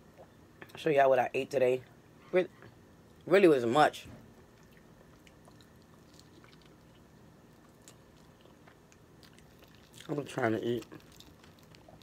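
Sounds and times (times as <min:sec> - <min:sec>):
faint chewing: 0:04.4 - 0:12.0.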